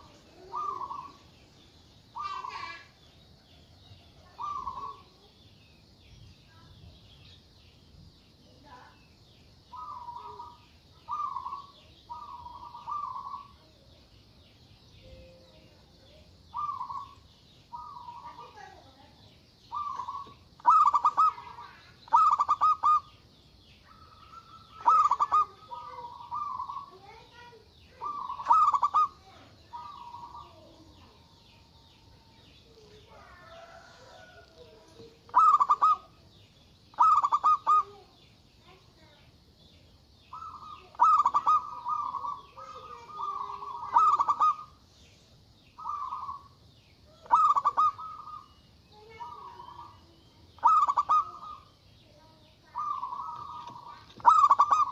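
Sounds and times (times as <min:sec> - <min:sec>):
dove cooing: 0:00.0 - 0:01.3, 0:02.1 - 0:03.0, 0:04.1 - 0:05.2, 0:09.7 - 0:13.6, 0:16.0 - 0:18.8, 0:19.7 - 0:23.2, 0:23.9 - 0:36.2, 0:36.9 - 0:38.2, 0:40.3 - 0:44.8, 0:45.8 - 0:51.7, 0:52.7 - 0:54.9
faint high chirring: 0:00.0 - 0:54.9.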